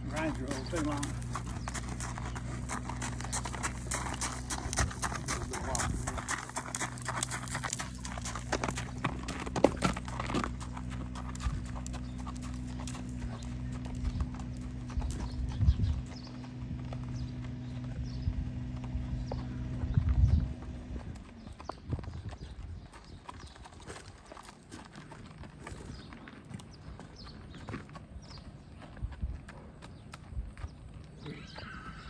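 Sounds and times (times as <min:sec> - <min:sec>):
steady low hum: 0:00.0 - 0:22.8
horse hoofbeats: 0:00.0 - 0:32.0.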